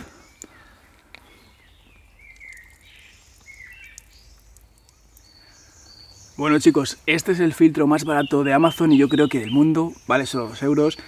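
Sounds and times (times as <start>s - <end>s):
faint bird chirps: 0.0s - 7.4s.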